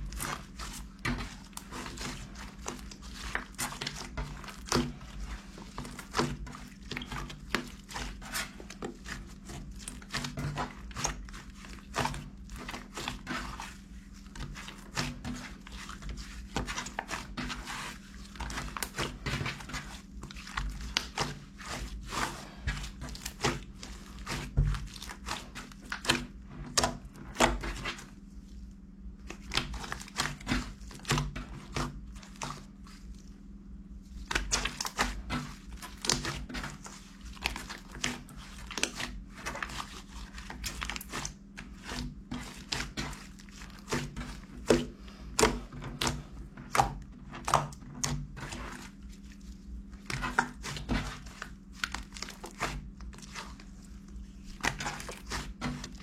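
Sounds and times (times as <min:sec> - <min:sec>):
rustling and crinkling: 0:00.0 - 0:56.0
steady low hum: 0:00.0 - 0:56.0.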